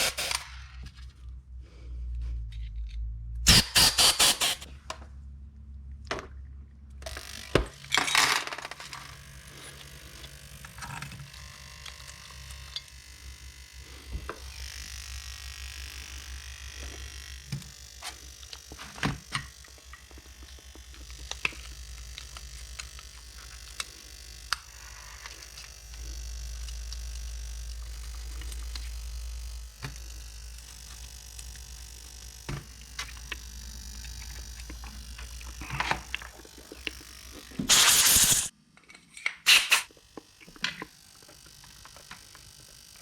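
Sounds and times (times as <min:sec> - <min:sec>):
short burst of hiss: 0:37.7 - 0:38.5.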